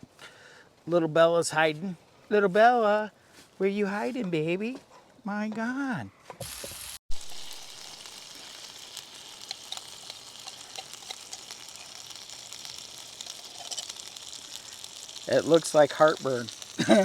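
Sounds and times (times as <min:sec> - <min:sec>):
food sizzling with small pops: 0:06.4 - 0:17.0.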